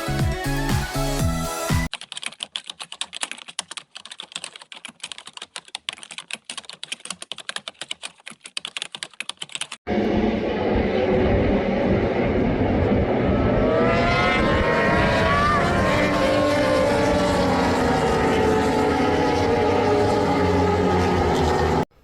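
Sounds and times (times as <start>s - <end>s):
electronic music with a beat: 0.0s - 1.9s
rapid irregular clicking: 1.9s - 9.8s
racing motorcycle engines: 9.9s - 21.9s.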